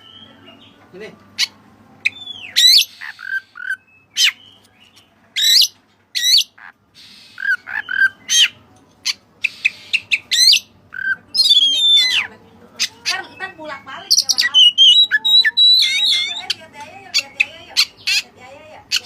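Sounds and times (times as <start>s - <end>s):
bird whistling song: 0.0s - 0.6s, 2.0s - 8.6s, 9.4s - 12.2s, 13.3s - 16.6s
bird chirps: 1.4s - 18.3s.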